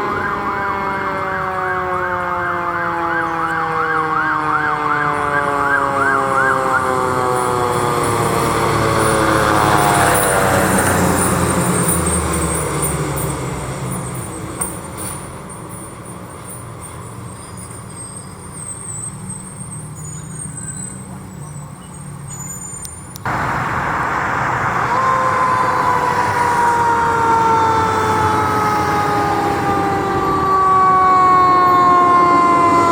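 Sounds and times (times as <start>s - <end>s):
emergency vehicle siren: 0.0s - 15.9s, 23.3s - 32.9s
traffic noise: 0.0s - 32.9s
heavy engine rumble: 4.6s - 32.9s.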